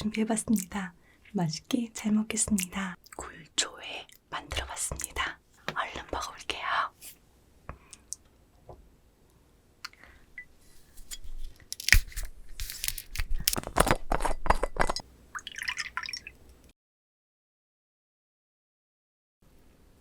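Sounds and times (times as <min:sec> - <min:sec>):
crisp vegetable crunches: 0:11.0 - 0:15.0.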